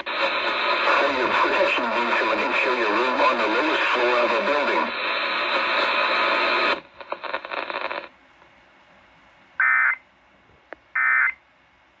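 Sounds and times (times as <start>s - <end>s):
radio static noise: 0.0s - 8.1s, 9.6s - 10.0s, 11.0s - 11.4s.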